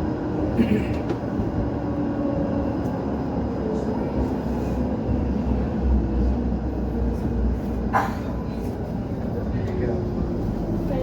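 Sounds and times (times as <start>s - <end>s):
tram rolling rumble: 0.0s - 11.0s.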